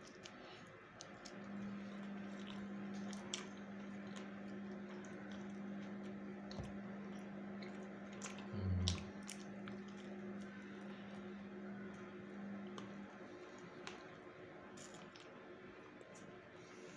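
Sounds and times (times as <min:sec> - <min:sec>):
wet chewing clicks and smacks: 0:00.0 - 0:10.9
steady low hum: 0:00.0 - 0:16.9.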